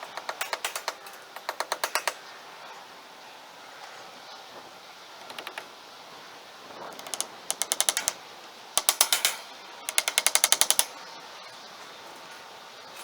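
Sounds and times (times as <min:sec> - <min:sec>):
rapid mechanical clicking: 0:00.0 - 0:02.2, 0:05.2 - 0:05.8, 0:06.8 - 0:08.2, 0:08.8 - 0:11.0.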